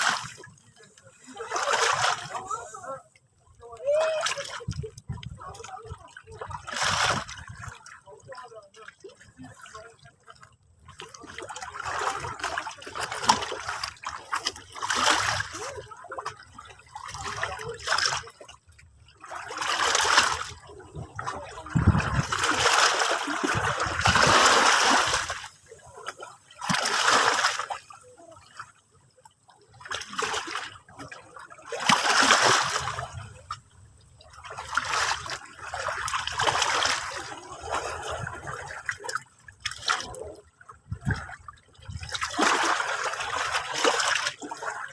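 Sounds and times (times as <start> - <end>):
sea waves breaking on shore: 0.0 - 5.0, 19.2 - 28.8, 29.9 - 33.6, 34.4 - 40.4.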